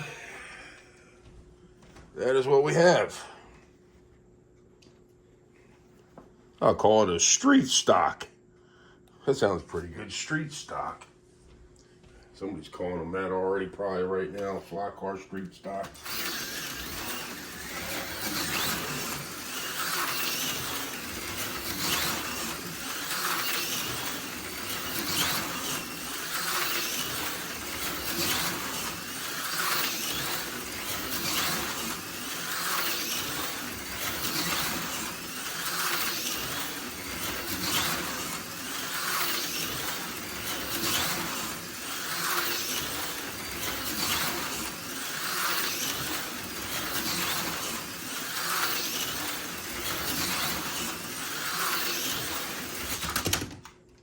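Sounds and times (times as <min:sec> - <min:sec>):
slot car motor whining: 0:00.0 - 0:01.1, 0:02.2 - 0:03.4, 0:12.4 - 0:53.7.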